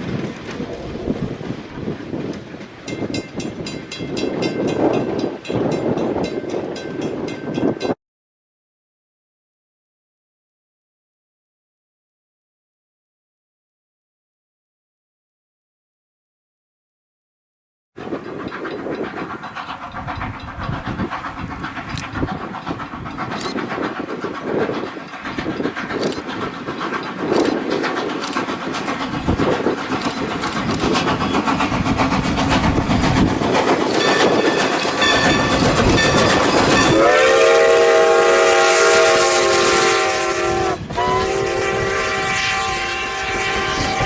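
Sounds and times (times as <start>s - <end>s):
train rumble and wheel clicks: 0.0s - 8.0s, 18.0s - 44.0s
train horn chord: 34.1s - 44.0s.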